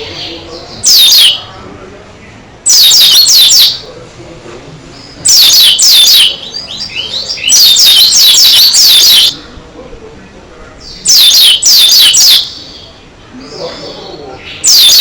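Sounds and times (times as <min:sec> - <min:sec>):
bird singing rapid high notes: 0:00.0 - 0:01.5, 0:02.6 - 0:03.8, 0:05.0 - 0:09.4, 0:10.8 - 0:13.0, 0:14.4 - 0:15.0
soft bird twittering: 0:00.0 - 0:01.6, 0:04.9 - 0:09.6, 0:10.7 - 0:15.0.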